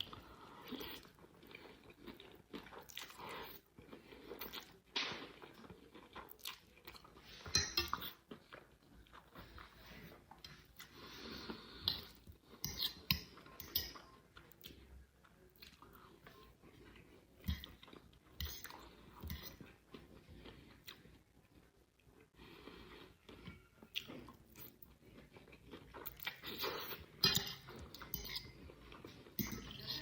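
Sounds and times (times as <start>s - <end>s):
chewing and crunching food: 0.0s - 30.0s
cutlery clinking on plate: 27.2s - 28.5s, 29.4s - 30.0s.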